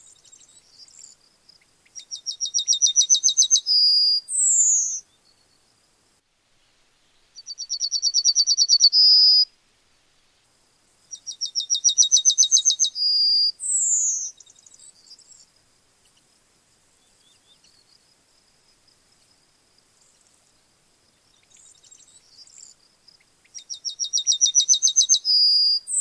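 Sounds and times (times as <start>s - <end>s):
bird singing: 0.0s - 5.7s, 7.1s - 9.5s, 11.1s - 16.2s, 17.0s - 18.1s, 21.1s - 26.0s.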